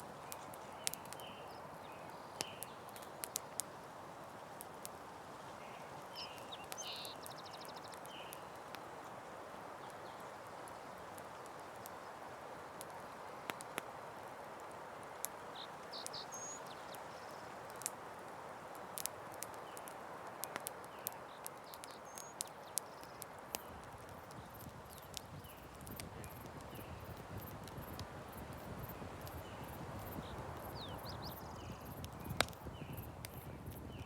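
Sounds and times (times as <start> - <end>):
campfire crackling: 0.0 - 34.0
bird chirps: 5.6 - 8.5, 28.8 - 33.1.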